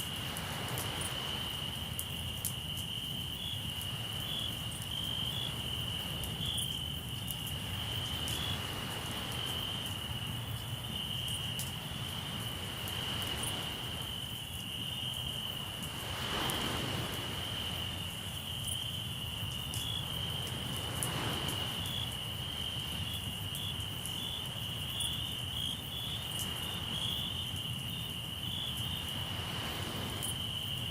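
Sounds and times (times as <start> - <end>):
sea waves washing: 0.0 - 2.1, 7.5 - 14.4, 15.4 - 23.1, 29.0 - 30.9
crickets trilling: 0.0 - 30.9.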